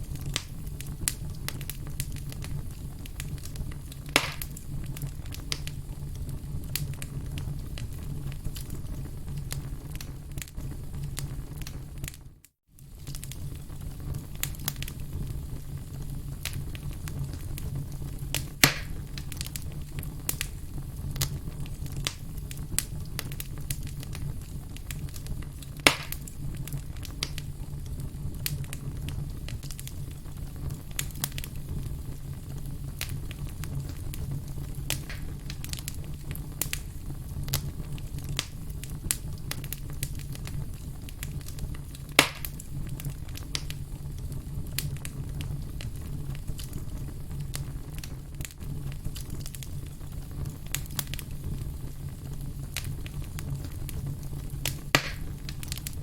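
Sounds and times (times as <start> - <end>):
campfire crackling: 0.0 - 12.2, 12.8 - 56.0
sharp fire pops: 0.0 - 12.2, 12.8 - 56.0.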